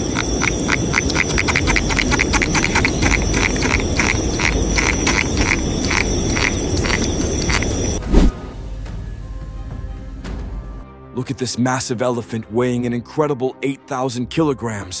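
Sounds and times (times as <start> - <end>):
frogs chirping: 0.0 - 8.0
high insect whine: 0.0 - 9.0.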